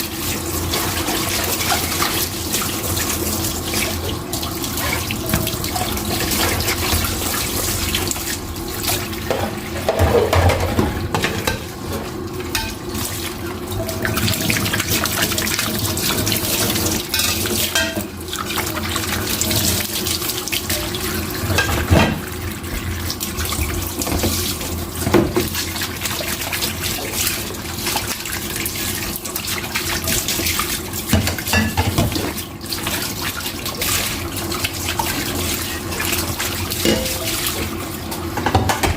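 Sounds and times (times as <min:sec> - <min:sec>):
tap water splashing in sink: 0:00.6 - 0:38.9
dishes clinking: 0:09.3 - 0:11.7, 0:12.5 - 0:12.8, 0:17.1 - 0:18.1, 0:31.2 - 0:32.1, 0:36.8 - 0:37.4.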